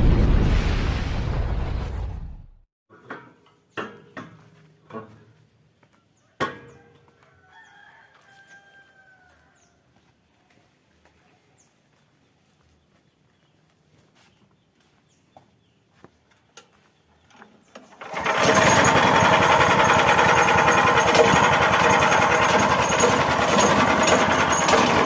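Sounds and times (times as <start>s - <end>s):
rooster crowing faintly: 6.2s - 10.7s.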